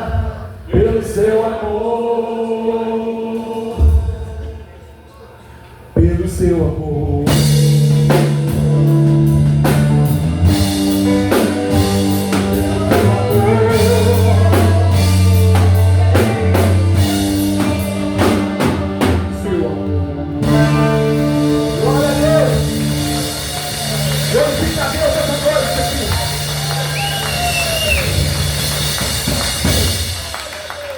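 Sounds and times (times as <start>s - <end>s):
drum kit beating: 0.0s - 1.9s, 6.0s - 30.9s
bass notes: 6.0s - 30.4s
guitar: 7.2s - 30.4s.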